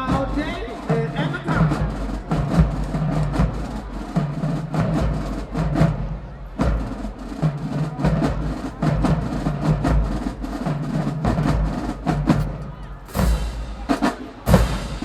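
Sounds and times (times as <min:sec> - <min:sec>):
marching band playing: 0:00.0 - 0:15.0
drum strikes: 0:11.2 - 0:15.0.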